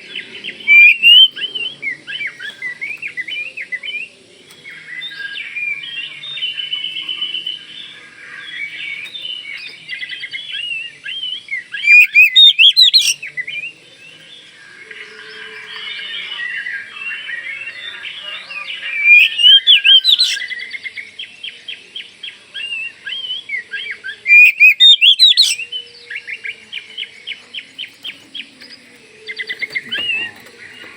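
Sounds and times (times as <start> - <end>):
songbird whistling and trilling: 0.2 - 4.1, 8.5 - 13.7, 15.1 - 21.6, 22.6 - 30.9.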